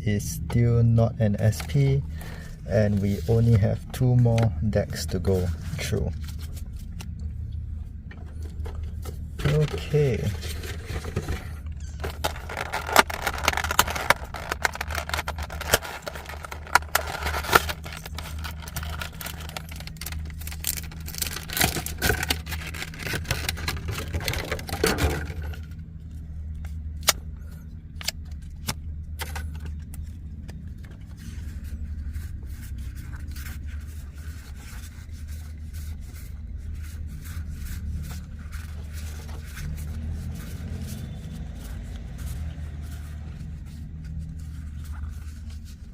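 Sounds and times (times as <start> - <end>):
low hum inside a car: 0.0 - 45.9
card pack crackling and rustling: 9.4 - 25.8, 29.5 - 45.9.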